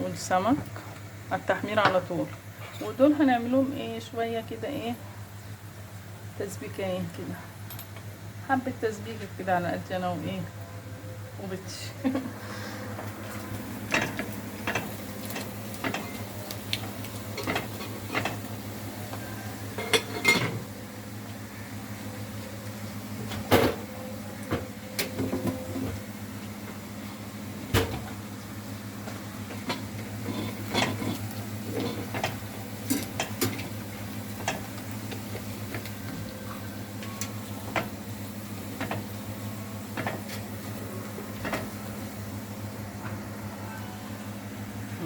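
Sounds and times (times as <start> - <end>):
steady low hum: 0.0 - 45.0
kitchen utensils clinking: 13.3 - 20.7, 29.5 - 37.9.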